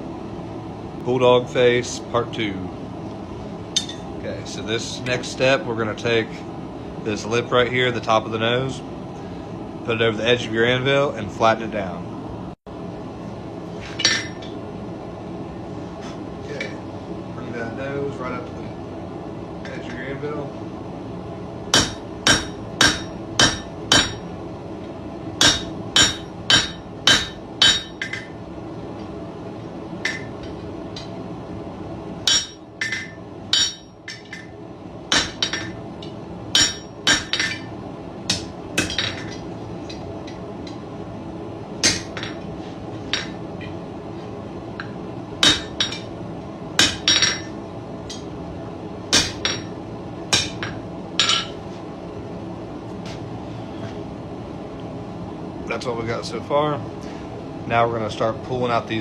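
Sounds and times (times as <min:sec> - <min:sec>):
steady hum: 0:00.0 - 0:59.0
hammer striking iron on anvil: 0:03.8 - 0:04.1, 0:21.7 - 0:24.3, 0:25.4 - 0:28.3, 0:32.2 - 0:34.5, 0:35.1 - 0:37.7, 0:38.3 - 0:39.4, 0:41.8 - 0:42.4, 0:43.1 - 0:43.4, 0:44.8 - 0:46.1, 0:46.8 - 0:48.3, 0:49.1 - 0:49.7, 0:50.3 - 0:51.6.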